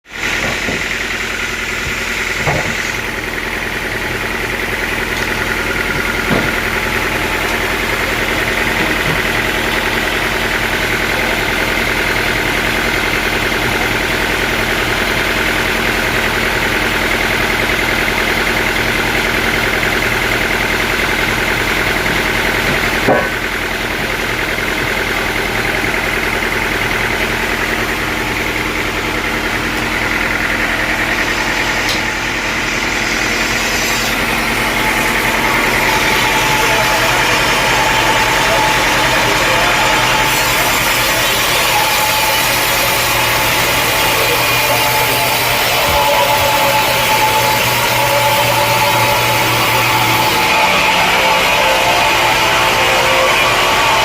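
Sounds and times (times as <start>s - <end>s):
sawmill machinery running: 0.0s - 54.0s
sharp knocks: 1.8s - 3.0s, 5.9s - 6.7s.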